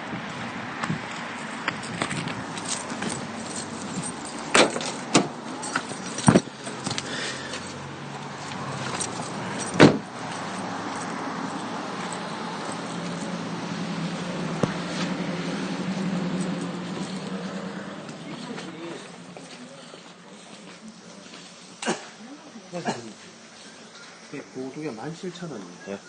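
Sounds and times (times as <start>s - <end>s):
vehicle engine humming: 0.0s - 25.8s.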